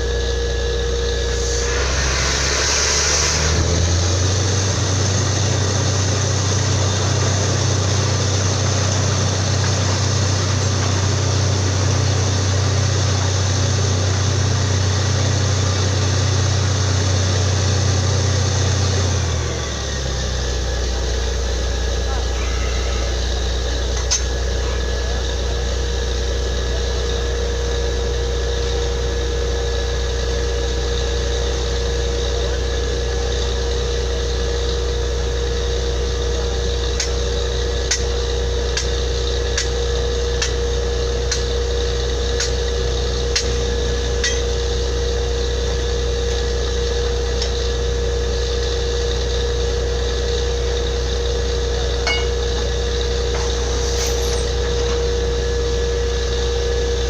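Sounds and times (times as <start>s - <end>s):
drilling rig droning: 0.0s - 57.0s
light metallic clinks: 52.0s - 52.7s.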